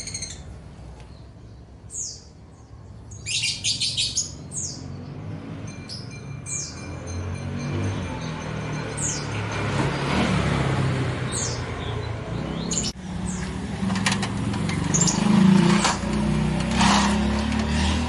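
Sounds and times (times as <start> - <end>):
small birds chirping: 0.0 - 7.0, 11.2 - 13.6, 14.6 - 16.0.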